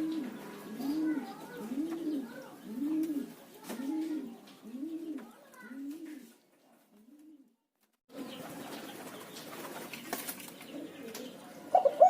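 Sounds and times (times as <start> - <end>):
dove cooing: 0.0 - 6.3, 10.7 - 12.0.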